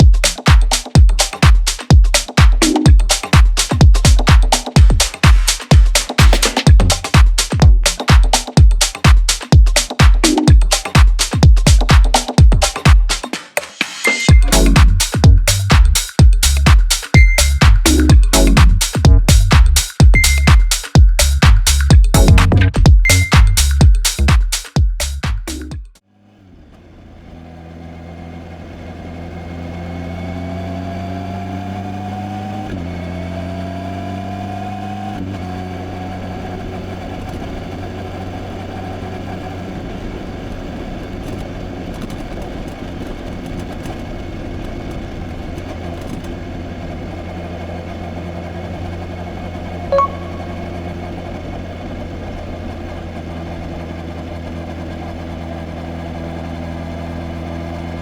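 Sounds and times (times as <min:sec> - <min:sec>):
brief beep: 0:14.0 - 0:14.6, 0:17.2 - 0:17.9, 0:20.2 - 0:20.8, 0:23.0 - 0:23.6, 0:49.9 - 0:50.9
motorcycle engine shifting gears: 0:27.2 - 0:58.0.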